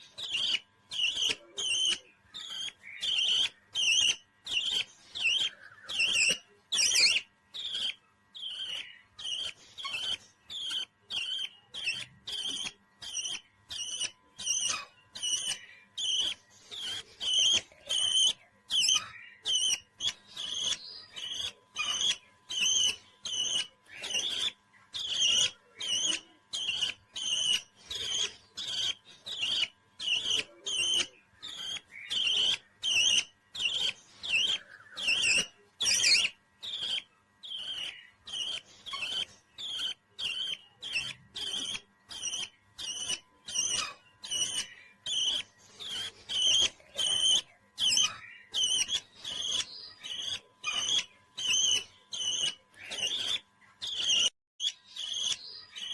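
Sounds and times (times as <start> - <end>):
parrot chirping calls: 0.0 - 55.9.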